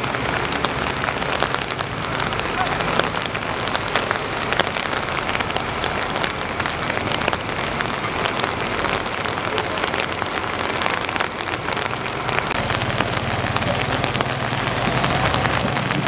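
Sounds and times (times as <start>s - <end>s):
rain pattering: 0.0s - 16.0s
truck engines humming: 0.0s - 16.0s.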